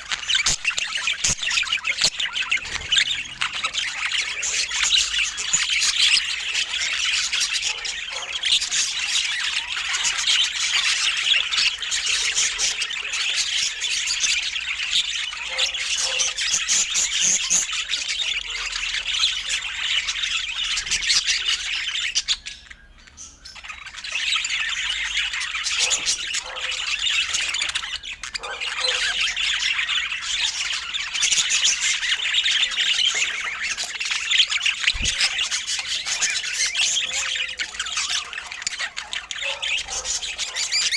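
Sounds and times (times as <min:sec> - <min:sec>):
budgerigars chattering: 0:00.0 - 0:40.9.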